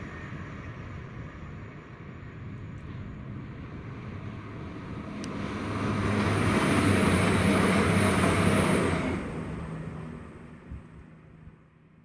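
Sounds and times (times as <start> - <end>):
passenger train passing: 0.0 - 11.8
steady high whine: 0.0 - 12.0.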